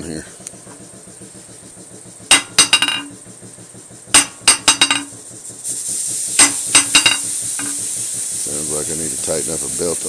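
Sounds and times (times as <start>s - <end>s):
air compressor hissing: 0.3s - 10.0s
hammer clanging and bouncing on anvil: 2.3s - 3.2s, 4.2s - 5.2s, 6.4s - 7.8s.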